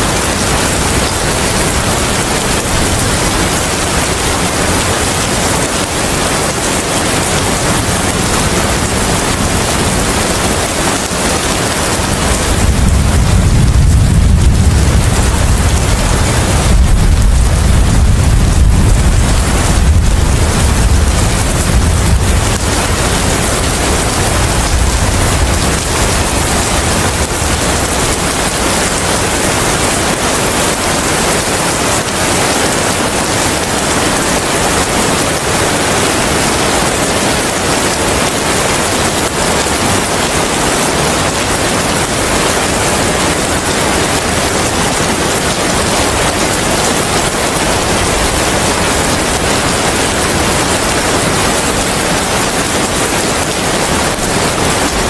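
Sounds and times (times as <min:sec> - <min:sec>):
heavy rain falling: 0:00.0 - 0:55.0
deep low rumble: 0:12.5 - 0:27.9.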